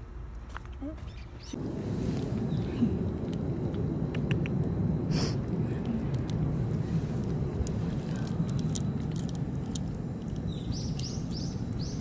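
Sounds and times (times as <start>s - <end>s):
low rumble: 1.5s - 12.0s
cat crunching dry food: 6.0s - 11.8s.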